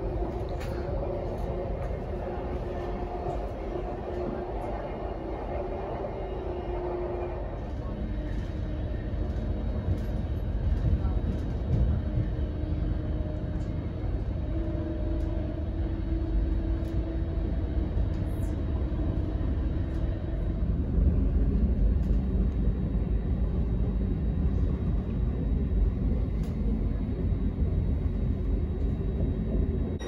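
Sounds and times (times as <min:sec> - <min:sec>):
train running rumble: 0:00.0 - 0:30.0.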